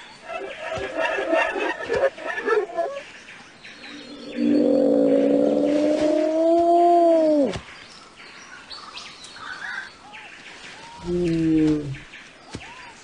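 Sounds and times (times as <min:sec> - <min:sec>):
loud bird calls: 0:00.0 - 0:07.8.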